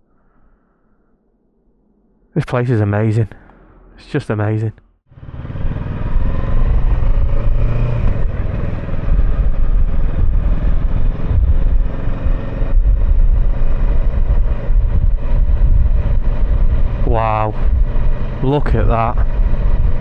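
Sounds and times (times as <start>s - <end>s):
motorcycle engine running: 5.1s - 20.0s
wind rumble on microphone: 5.5s - 20.0s.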